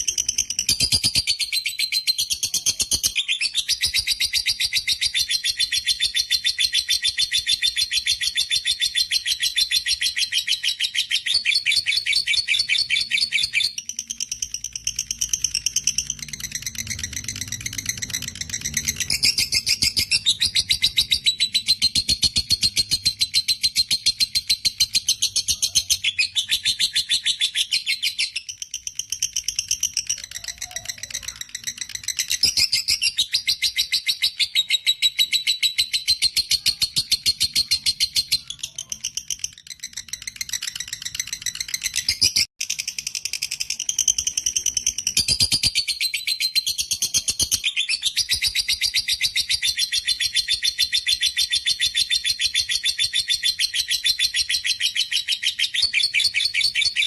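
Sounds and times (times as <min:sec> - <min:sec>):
lovebird trilling: 0:08.2 - 0:42.5.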